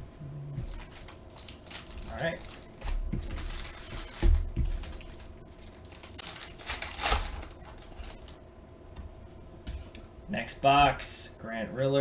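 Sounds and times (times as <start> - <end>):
wrapper crinkling: 0.7 - 8.4.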